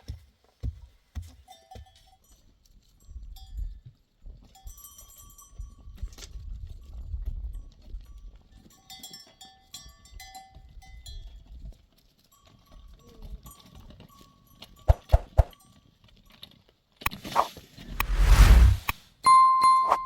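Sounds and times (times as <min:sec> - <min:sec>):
livestock bells clinking: 0:08.6 - 0:11.2
rush of noise: 0:17.9 - 0:18.9.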